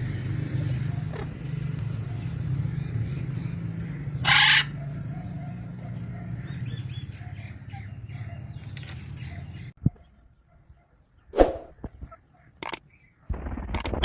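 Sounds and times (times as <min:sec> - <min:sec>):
parrot squawk: 0:04.2 - 0:04.8.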